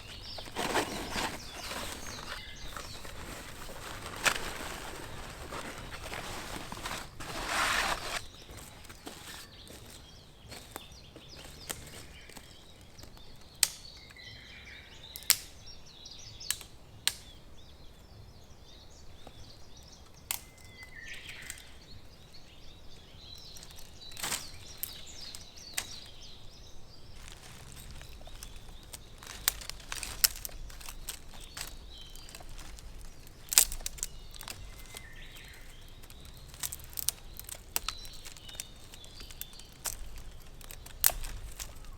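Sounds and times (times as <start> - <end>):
birds chirping faintly: 0.0 - 41.9
campfire crackling: 27.1 - 41.9.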